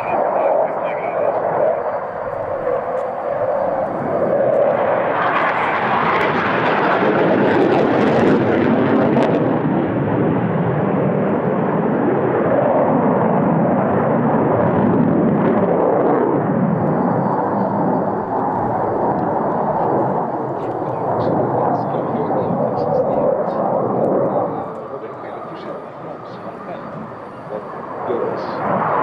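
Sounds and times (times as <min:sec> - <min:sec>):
loud jet engine rushing: 0:00.0 - 0:29.0.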